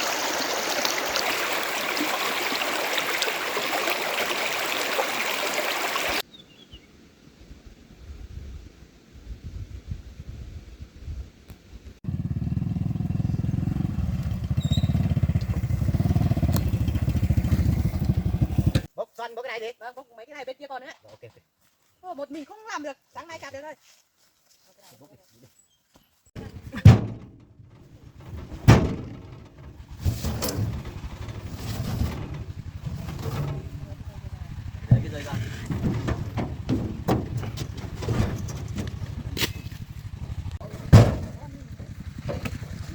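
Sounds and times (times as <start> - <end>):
engine chugging: 12.1 - 18.9, 26.4 - 42.9.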